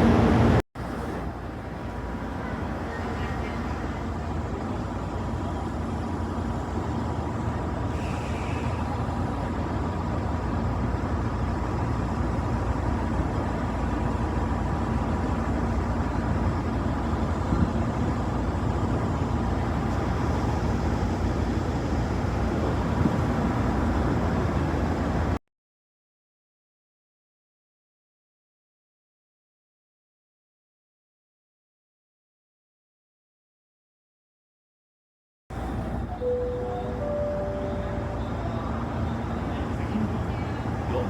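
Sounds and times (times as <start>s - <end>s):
train running rumble: 0.0s - 25.4s, 35.5s - 41.0s.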